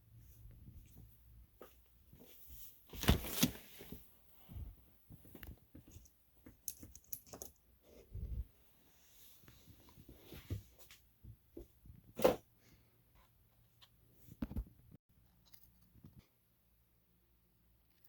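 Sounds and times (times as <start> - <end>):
small model parts clicking and tapping: 6.6 - 7.6.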